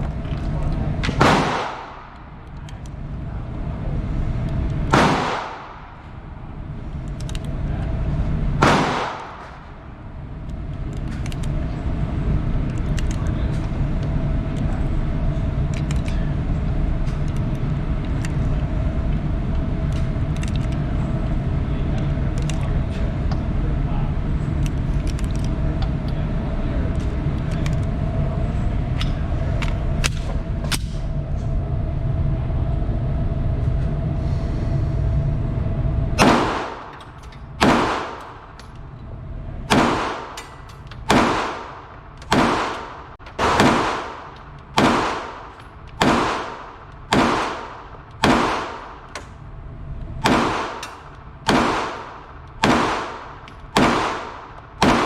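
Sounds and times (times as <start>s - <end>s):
steady low rumble: 0.0s - 55.0s
pistol shots: 1.0s - 2.3s, 4.8s - 6.1s, 8.6s - 9.8s, 36.2s - 37.0s, 37.6s - 38.6s, 39.7s - 49.2s, 50.2s - 55.0s.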